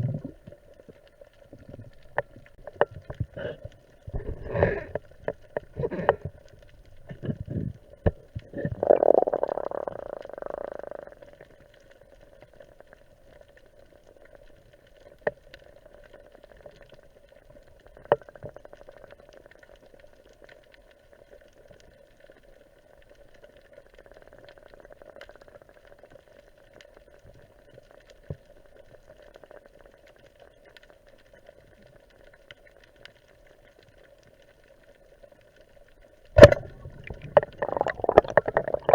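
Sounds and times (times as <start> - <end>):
rush of bubbles: 0.0 - 0.6, 1.5 - 11.4, 36.4 - 38.9
underwater low hum: 0.0 - 38.9
water splashing: 36.4 - 38.9.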